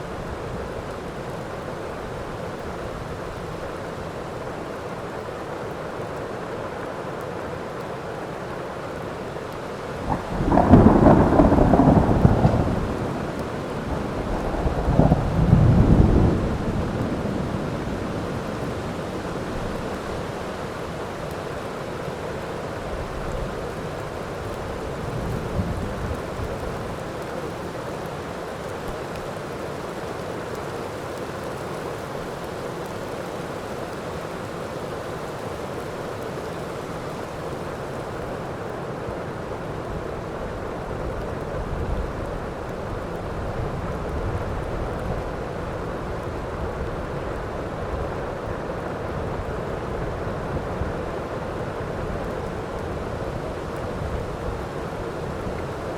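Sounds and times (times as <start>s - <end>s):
heavy rain: 0.0s - 55.9s
thunder rumbling: 10.0s - 19.0s.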